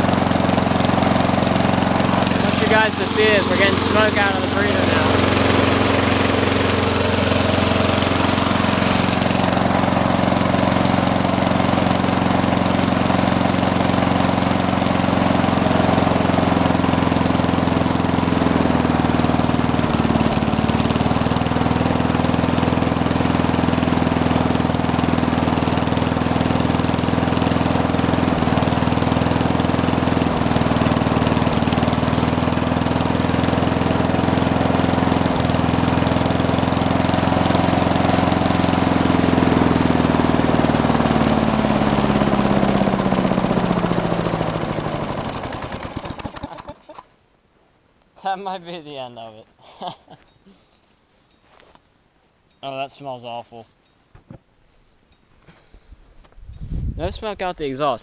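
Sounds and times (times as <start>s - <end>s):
lawn mower engine running: 0.0s - 47.1s.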